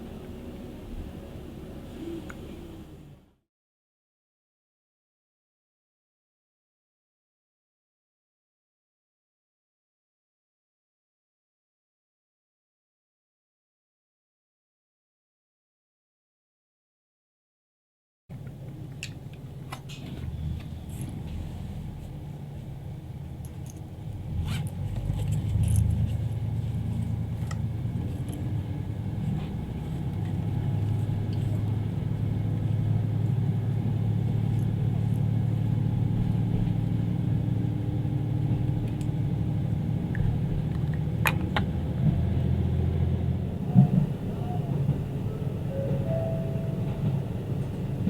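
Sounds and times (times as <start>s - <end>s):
diesel railcar engine droning: 0.0s - 3.4s, 18.4s - 48.0s.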